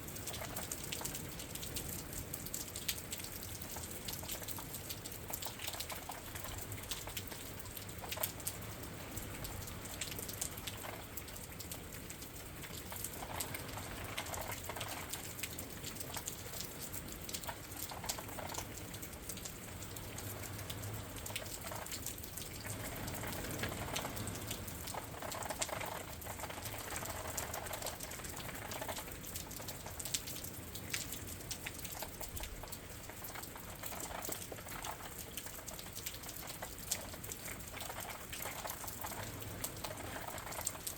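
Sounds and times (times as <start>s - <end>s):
rain pattering on window: 0.0s - 40.9s.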